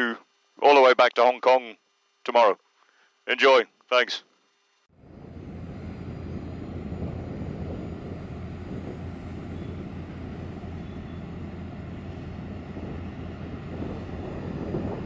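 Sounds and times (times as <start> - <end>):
aircraft engine roar: 4.9 - 15.0.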